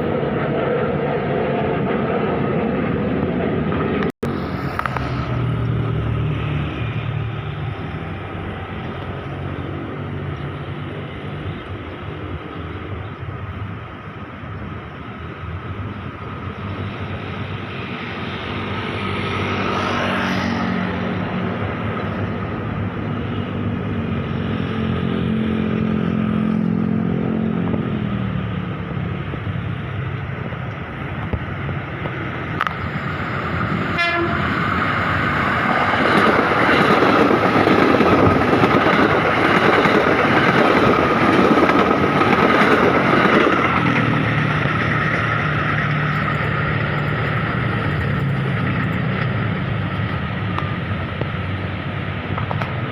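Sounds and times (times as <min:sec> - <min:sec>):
train carriages rumbling: 0:00.0 - 0:52.9
train horn tone dropping in pitch: 0:33.9 - 0:34.6.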